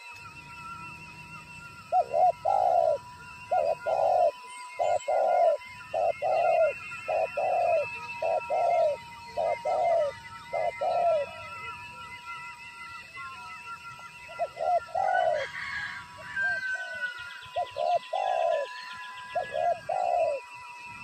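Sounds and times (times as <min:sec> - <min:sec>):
faint high bird chirps: 0:00.0 - 0:21.0
dove cooing: 0:01.7 - 0:11.8, 0:14.2 - 0:20.6.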